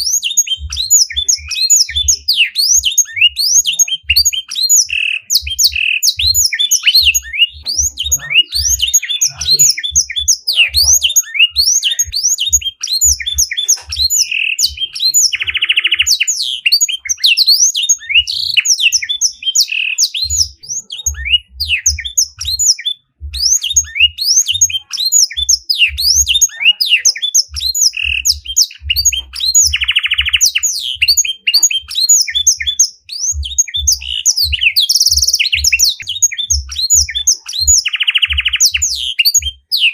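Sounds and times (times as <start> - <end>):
songbird singing: 0.0 - 39.9
harsh buzzy trill: 4.6 - 15.5
soft low thuds: 20.3 - 26.5, 33.0 - 38.5.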